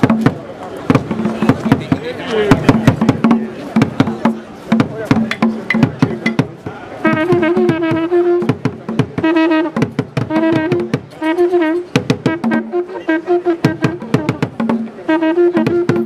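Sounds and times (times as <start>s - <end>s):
drum beat: 0.0s - 12.7s, 13.6s - 16.0s
brass instrument held notes: 6.9s - 16.0s.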